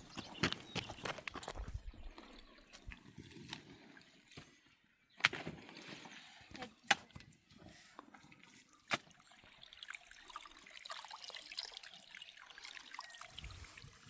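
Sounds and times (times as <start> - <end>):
water trickling and dripping: 6.6 - 14.0.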